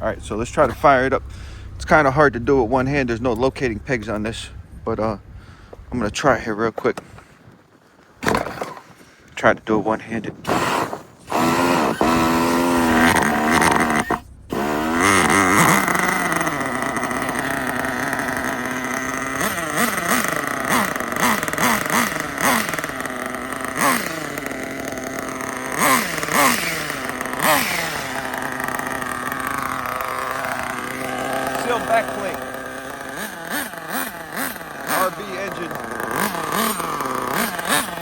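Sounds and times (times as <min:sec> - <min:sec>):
engine throttle blips: 0:00.0 - 0:38.0
small nitro engine running: 0:10.4 - 0:38.0.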